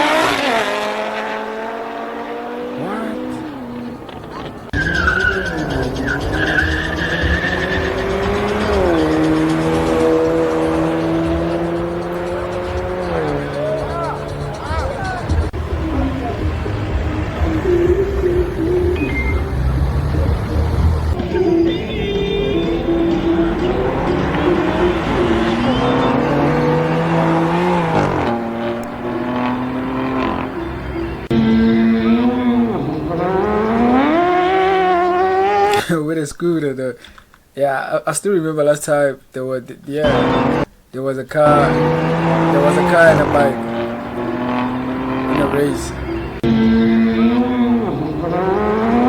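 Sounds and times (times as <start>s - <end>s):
racing car engine: 0.0s - 35.8s, 40.0s - 40.7s, 41.4s - 49.0s
tire squeal: 3.4s - 35.7s.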